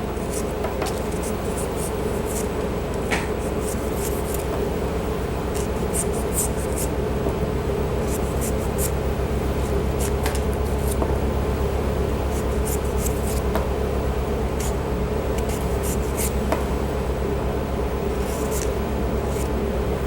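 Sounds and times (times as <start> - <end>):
steady low hum: 0.0 - 20.0
ginger root being peeled: 0.1 - 4.6, 5.5 - 7.0, 7.9 - 11.2, 12.1 - 13.7, 14.5 - 16.5, 18.1 - 19.6.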